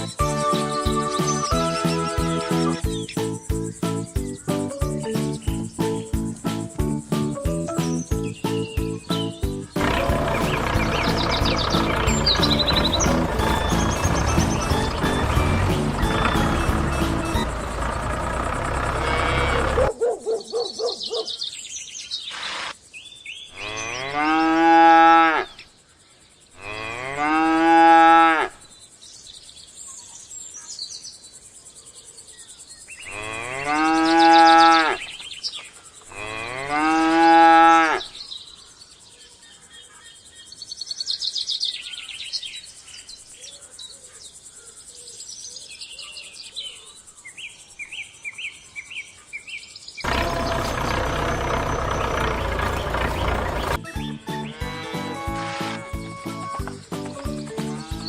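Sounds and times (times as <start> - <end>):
birds chirping faintly: 0.0 - 24.7, 37.7 - 55.3
cattle mooing: 9.8 - 17.5, 18.8 - 19.9.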